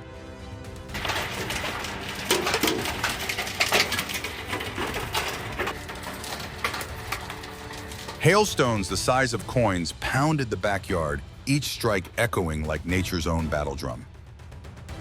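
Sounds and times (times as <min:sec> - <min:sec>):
hailstones pounding down: 0:00.9 - 0:10.2.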